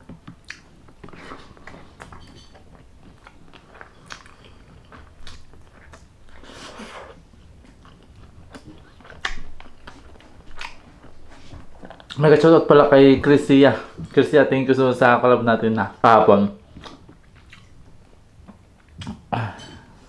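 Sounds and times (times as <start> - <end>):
chewing crunchy fried food: 0.3 - 12.2, 16.7 - 19.2.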